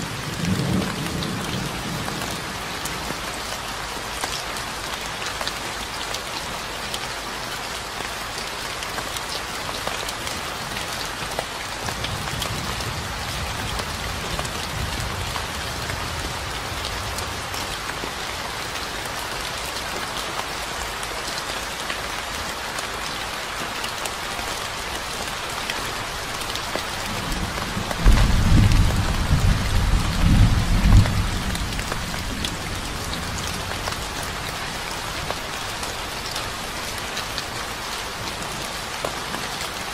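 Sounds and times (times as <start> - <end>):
steady rain: 0.0 - 39.9
thunder rumbling: 27.1 - 33.8.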